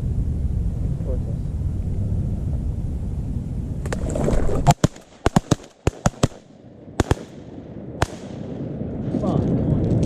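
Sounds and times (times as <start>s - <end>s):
low rumbling on microphone: 0.0s - 4.7s, 6.6s - 10.0s
shotguns firing: 4.6s - 8.8s.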